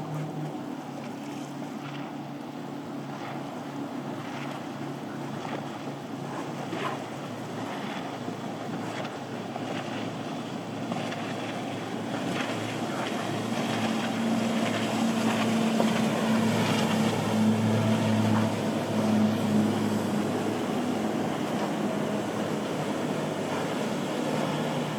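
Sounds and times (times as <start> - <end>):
motorboat engine running: 0.0 - 24.9
wind: 0.0 - 24.9
breaking surf: 11.5 - 24.9.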